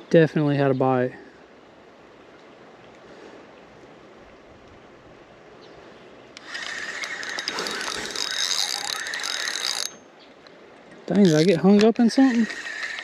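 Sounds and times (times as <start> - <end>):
fishing reel clicking whir: 6.4 - 10.0, 11.1 - 13.0.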